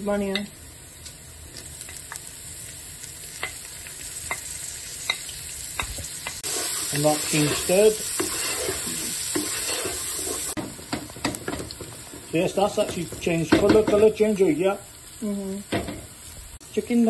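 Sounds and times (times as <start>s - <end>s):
oil sizzling: 0.0s - 17.0s
wooden spoon scraping bowl: 6.4s - 10.6s.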